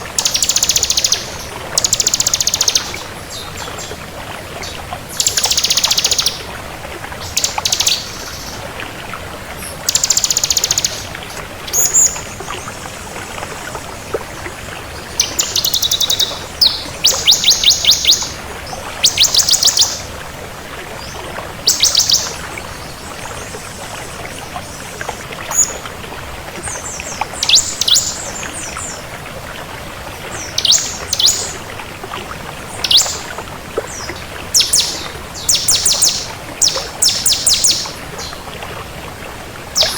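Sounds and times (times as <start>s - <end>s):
bird singing high trilled phrases: 0.2s - 3.0s, 5.2s - 6.4s, 9.9s - 11.1s, 15.2s - 18.4s, 19.0s - 20.1s, 27.4s - 28.2s, 30.5s - 31.5s, 32.8s - 33.2s, 34.0s - 38.4s.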